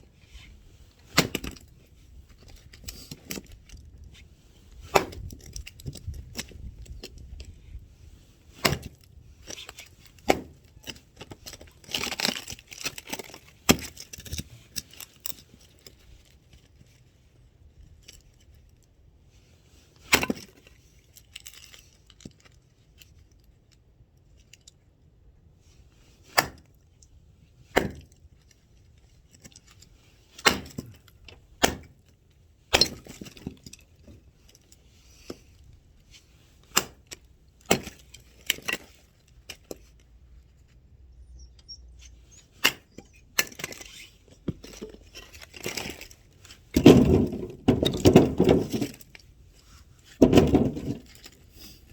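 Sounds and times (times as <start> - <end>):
axe chopping firewood: 1.1 - 1.6, 4.8 - 5.5, 8.6 - 9.0, 10.2 - 10.6, 13.7 - 14.0, 26.4 - 26.7, 27.7 - 28.1, 30.4 - 31.0, 31.6 - 32.0, 32.7 - 33.4, 36.7 - 37.1, 37.7 - 38.0, 46.7 - 49.0, 50.2 - 51.1
wood clattering: 42.5 - 51.9.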